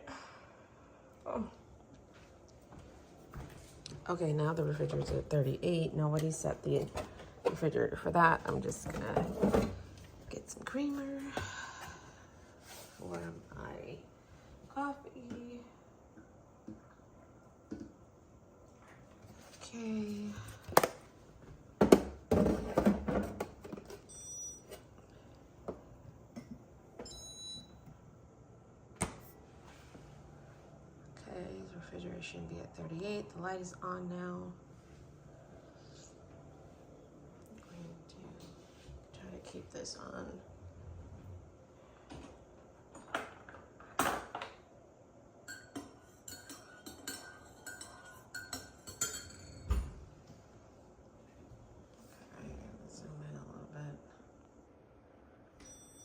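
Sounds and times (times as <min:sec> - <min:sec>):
refrigerator electronic beeps: 0:24.0 - 0:24.9, 0:27.0 - 0:27.9, 0:55.6 - 0:56.0
dishes clinking and knocking: 0:45.5 - 0:50.0.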